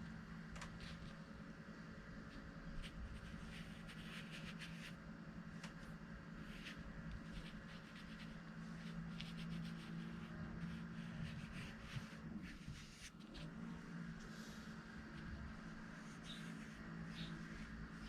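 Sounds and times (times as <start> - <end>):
paintbrush strokes on paper: 2.3 - 5.0, 6.3 - 18.0.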